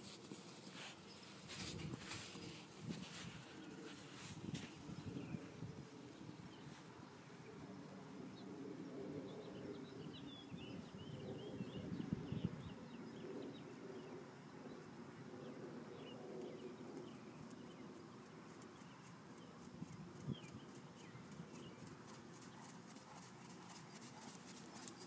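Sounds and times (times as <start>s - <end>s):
small birds chirping: 15.4s - 25.0s.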